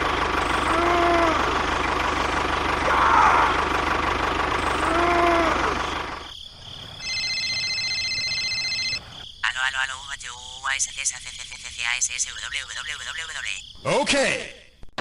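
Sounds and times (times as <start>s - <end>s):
small engine running: 0.0s - 6.3s.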